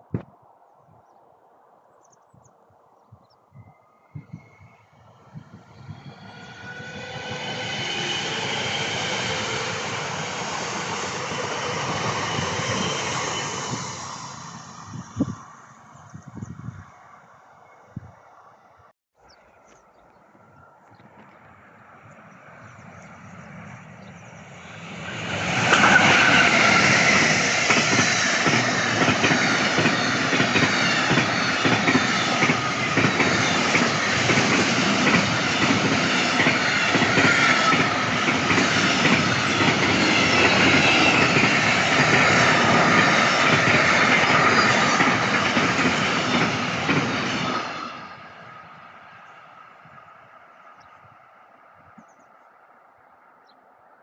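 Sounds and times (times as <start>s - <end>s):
train wheels rushing on rail: 5.2s - 16.2s, 21.0s - 50.0s
train wheel clacks: 25.2s - 47.6s.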